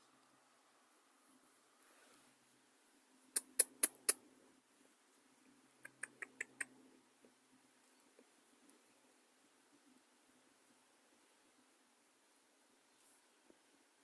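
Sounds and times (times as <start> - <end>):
bird beak tapping: 5.8 - 6.7.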